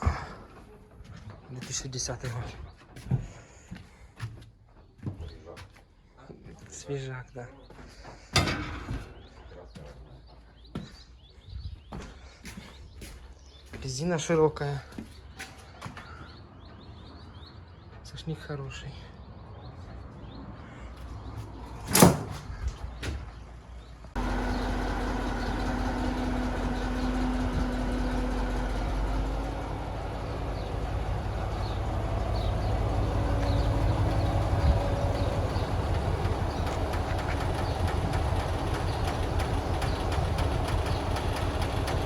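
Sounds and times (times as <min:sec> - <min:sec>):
engine running at low speed: 0:24.0 - 0:42.0.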